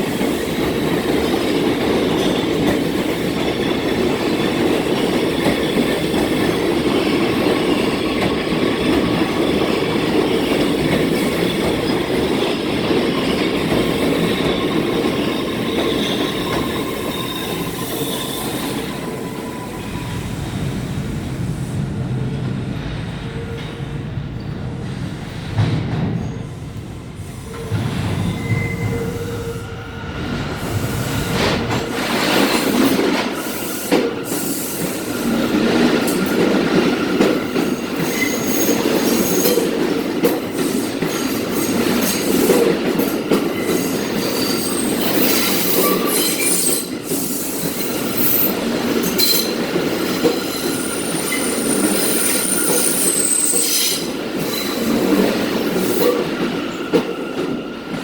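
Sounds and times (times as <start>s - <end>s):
subway train wheels rumbling: 0.0s - 58.0s
high-pitched wheel squeals: 27.6s - 29.7s.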